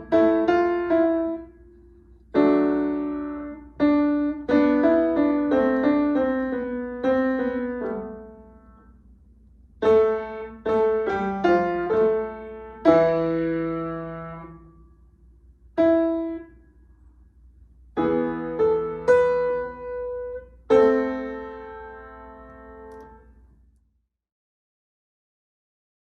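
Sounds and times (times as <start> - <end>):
piano notes and chords: 0.0 - 8.9, 9.8 - 15.0, 15.7 - 16.6, 17.9 - 23.4.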